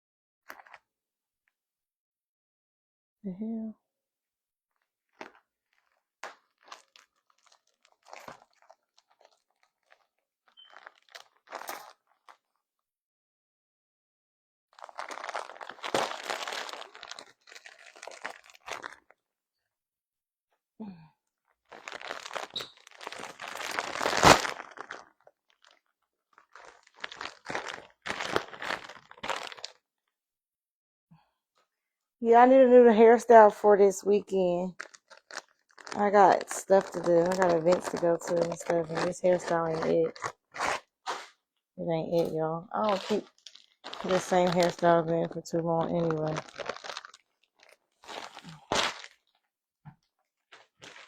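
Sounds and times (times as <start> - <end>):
crunching and crackling: 5.1 - 12.4, 14.8 - 19.2, 21.6 - 29.8, 34.7 - 41.4, 42.2 - 49.4, 50.4 - 51.0.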